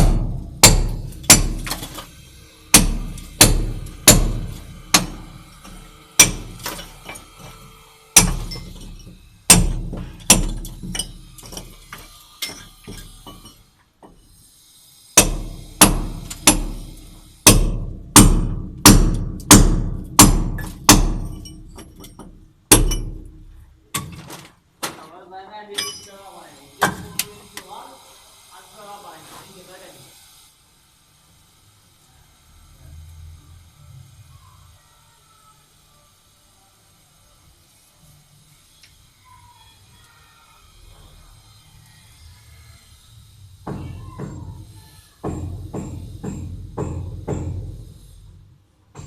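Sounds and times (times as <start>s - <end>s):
ringing hammer strikes: 2.7s - 7.5s, 8.2s - 11.7s, 45.2s - 47.8s.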